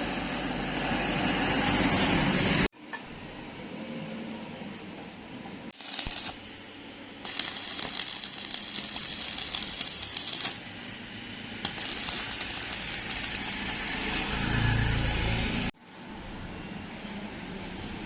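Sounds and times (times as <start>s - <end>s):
electric arc welding crackle: 5.7s - 6.6s, 7.2s - 11.0s, 11.6s - 14.5s.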